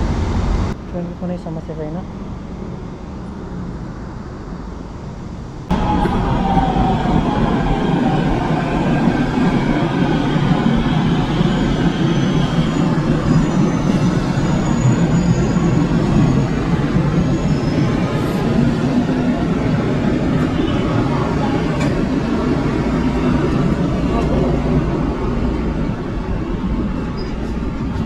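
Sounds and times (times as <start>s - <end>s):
subway train rumbling: 0.0s - 28.0s
train whine falling in pitch: 5.7s - 18.6s.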